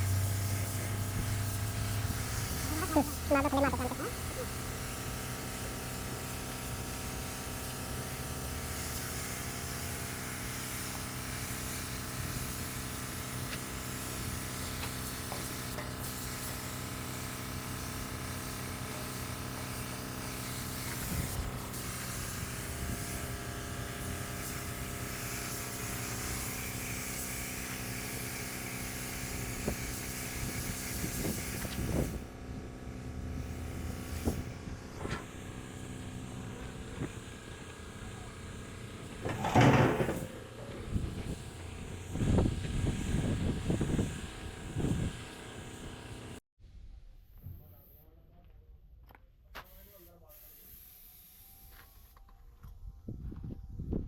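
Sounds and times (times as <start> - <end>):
compressed air hissing: 49.7 - 51.7.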